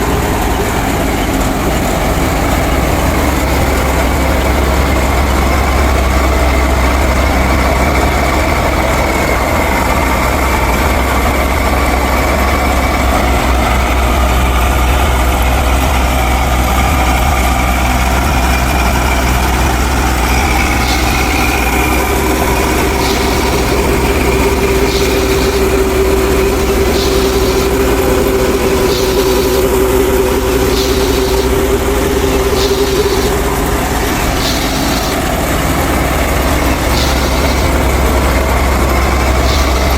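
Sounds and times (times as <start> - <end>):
machine motor droning: 0.0 - 39.9
steady hum: 0.0 - 39.9
faint ticking: 17.1 - 39.9.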